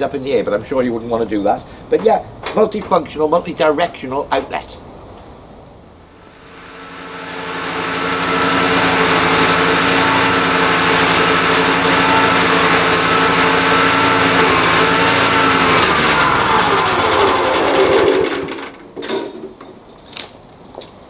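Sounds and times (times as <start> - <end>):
wood chipper engine running: 6.2 - 19.4.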